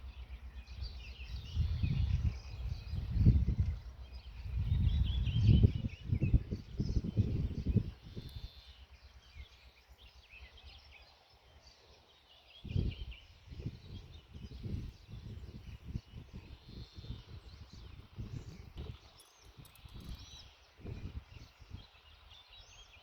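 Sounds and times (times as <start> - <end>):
low rumble: 0.0 - 8.3
songbirds chirping and singing: 0.0 - 23.0.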